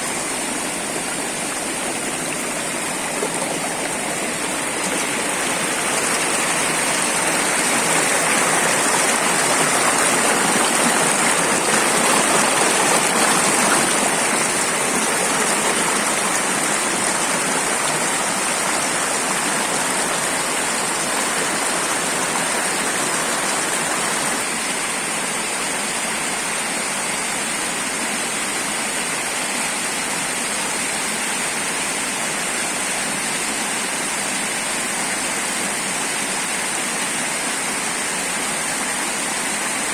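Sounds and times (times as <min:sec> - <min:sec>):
waterfall rushing: 0:00.0 - 0:26.8.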